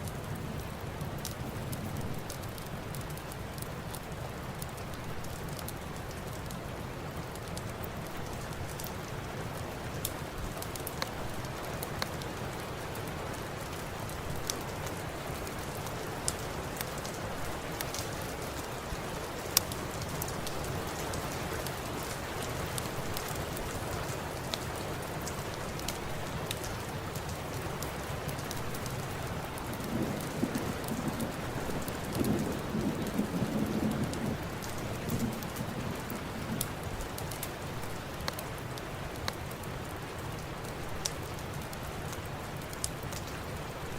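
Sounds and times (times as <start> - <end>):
sharp crackles: 0.0 - 43.9
steady rain: 0.0 - 43.9
thunder rumbling: 28.2 - 38.2.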